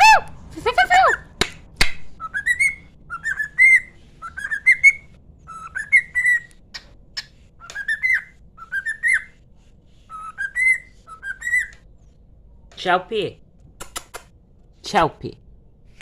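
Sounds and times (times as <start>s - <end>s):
cockatiel whistling: 2.2s - 6.6s, 7.2s - 9.4s, 10.1s - 11.8s
sharp clicks: 13.7s - 14.4s.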